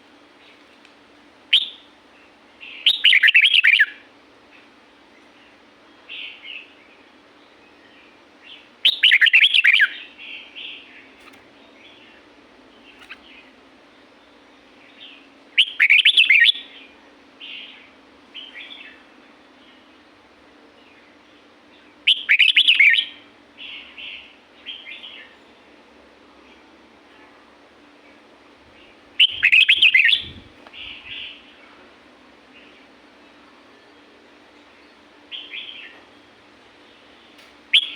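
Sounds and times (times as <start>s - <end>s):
bird singing warbled phrases: 1.5s - 1.9s, 2.6s - 4.0s, 5.4s - 13.6s, 14.8s - 19.0s, 20.9s - 25.4s, 28.1s - 31.7s, 34.9s - 36.0s, 36.9s - 37.9s.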